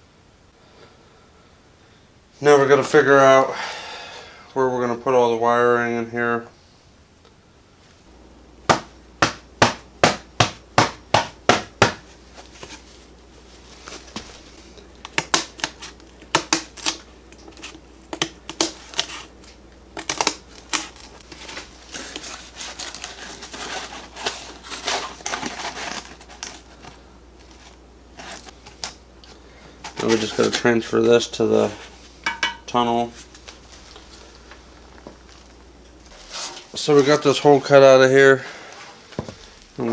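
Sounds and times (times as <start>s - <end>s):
hand tools tapping and clattering: 32.2s - 32.7s.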